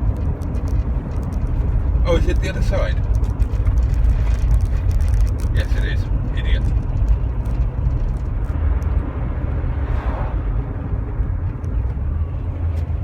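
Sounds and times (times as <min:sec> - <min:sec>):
engine and road rumble: 0:00.0 - 0:13.0
rushing noise: 0:08.5 - 0:11.5.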